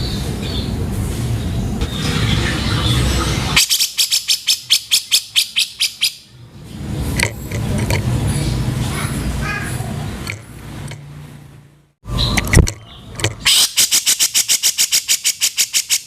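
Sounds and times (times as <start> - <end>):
bird harsh chattering call: 1.9 - 6.3, 12.1 - 16.0.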